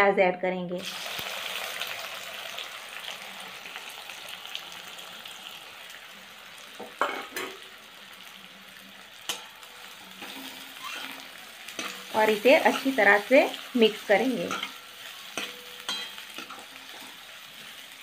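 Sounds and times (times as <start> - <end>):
onions sizzling in hot oil: 0.8 - 18.0
metal spoon tapping pan: 9.2 - 9.6, 11.8 - 13.1, 14.3 - 16.8.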